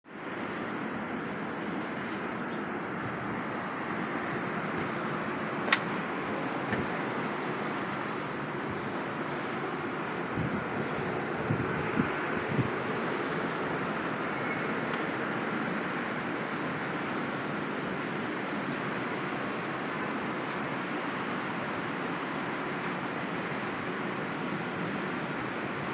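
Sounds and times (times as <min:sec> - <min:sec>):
street traffic: 0:00.1 - 0:25.9.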